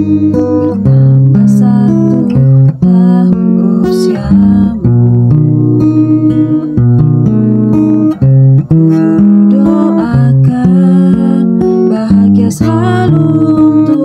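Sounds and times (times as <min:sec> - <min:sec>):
bass line: 0:00.0 - 0:11.1
acoustic guitar music: 0:00.0 - 0:14.0.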